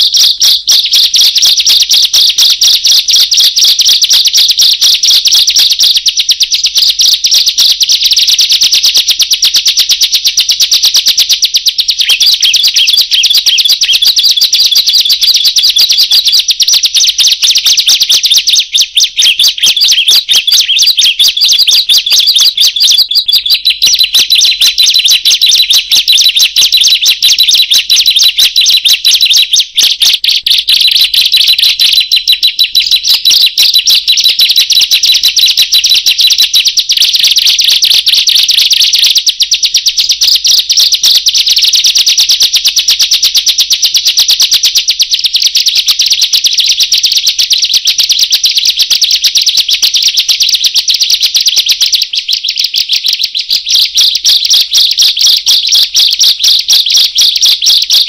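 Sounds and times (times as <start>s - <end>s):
bird singing shrill chirps: 0.0s - 8.1s, 11.4s - 34.3s.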